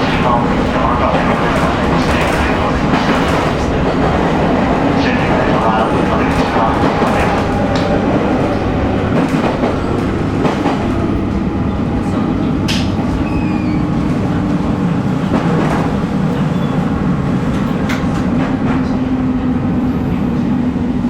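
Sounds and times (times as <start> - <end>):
sharp clicks from rails: 0.0 - 11.5, 12.6 - 13.2, 17.4 - 19.0.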